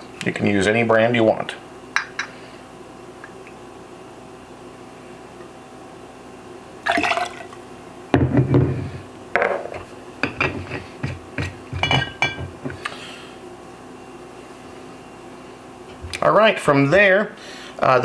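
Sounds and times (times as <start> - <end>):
liquor pouring from bottle: 6.9 - 7.6
glass knocks and clinks: 11.8 - 12.5.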